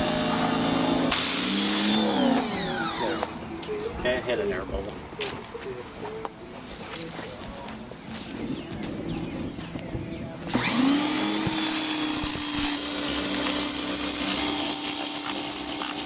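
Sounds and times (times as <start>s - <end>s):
electric motor hum: 0.0s - 3.5s, 10.5s - 16.0s.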